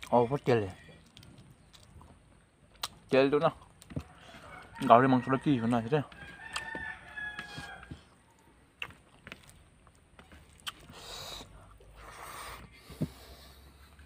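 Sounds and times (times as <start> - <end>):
wet mouth clicks and chewing: 1.0 - 4.7, 6.2 - 7.2, 8.4 - 12.1.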